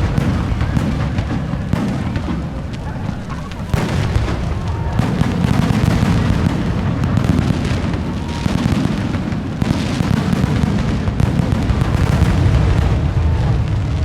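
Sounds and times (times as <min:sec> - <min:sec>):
fireworks crackle: 0:00.0 - 0:14.0.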